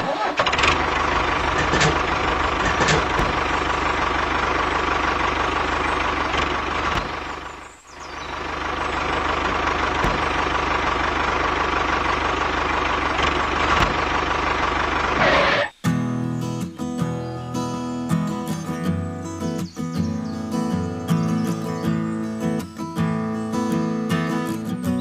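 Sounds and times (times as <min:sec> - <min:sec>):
small engine pulsing: 0:00.0 - 0:15.8.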